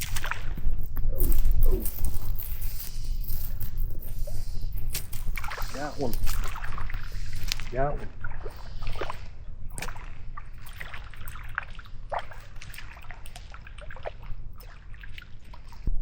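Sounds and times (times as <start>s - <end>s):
water splashing and dripping: 0.0s - 0.8s, 4.9s - 15.9s.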